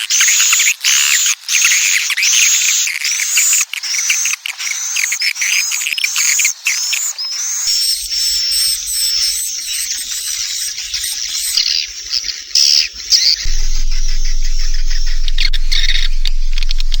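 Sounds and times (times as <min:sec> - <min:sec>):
high twittering bird chirps: 0:04.8 - 0:17.0
steady low hum: 0:12.9 - 0:17.0.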